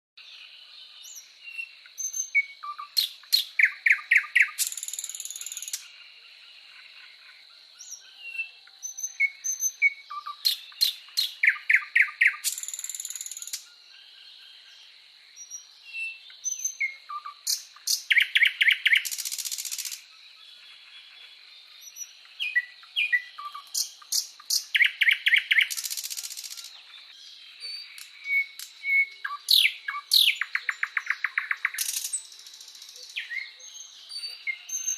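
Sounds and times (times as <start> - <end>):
bird song with buzzy trill: 0.4 - 6.0, 7.8 - 13.8, 14.6 - 34.9
short bird chirps: 1.0 - 5.9, 7.8 - 13.8, 15.3 - 20.2, 21.8 - 34.9.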